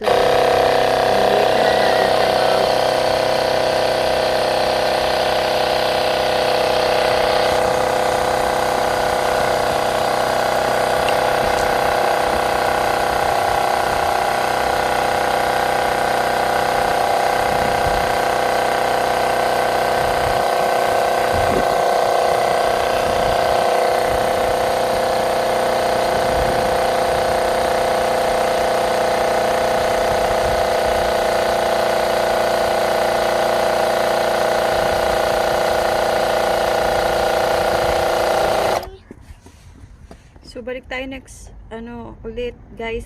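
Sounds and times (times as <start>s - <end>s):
portable air compressor whining: 0.0s - 40.4s.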